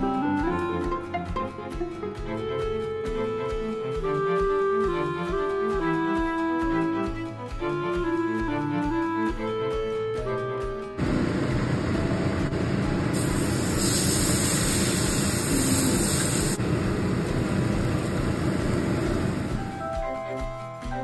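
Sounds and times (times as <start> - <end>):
batter sizzling in oil: 13.2 - 16.6.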